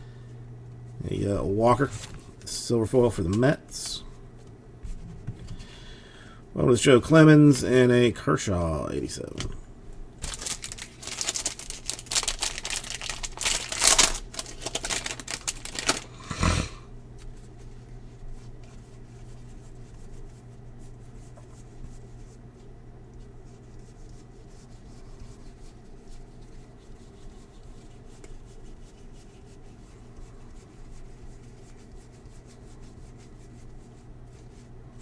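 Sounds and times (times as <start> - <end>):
faint steady hum: 0.0 - 35.0
trading cards rustling and clicking: 10.2 - 16.2.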